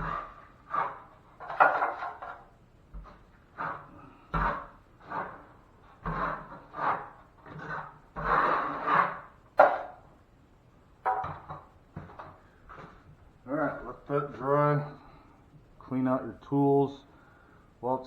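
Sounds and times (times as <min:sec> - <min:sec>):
drywall knife scraping compound: 0:00.0 - 0:10.0.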